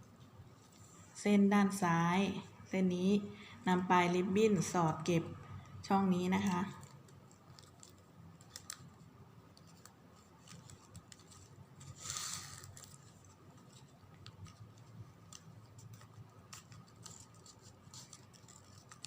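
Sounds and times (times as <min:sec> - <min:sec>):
ribbon rustling and clicking: 0:05.6 - 0:19.0.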